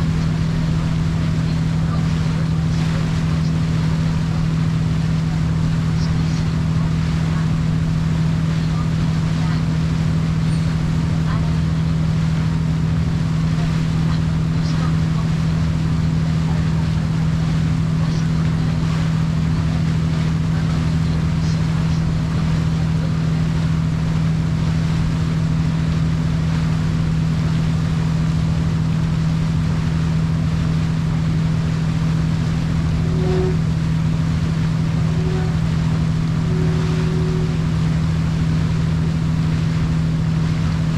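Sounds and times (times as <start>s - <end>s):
boat engine humming: 0.0s - 40.9s
short tones: 32.4s - 39.4s.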